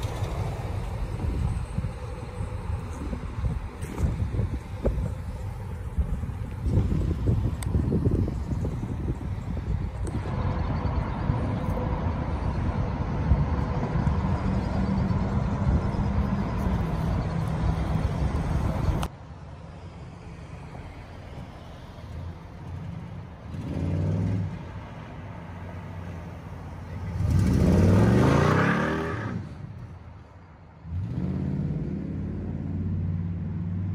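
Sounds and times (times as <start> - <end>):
car accelerating past: 26.9 - 29.8.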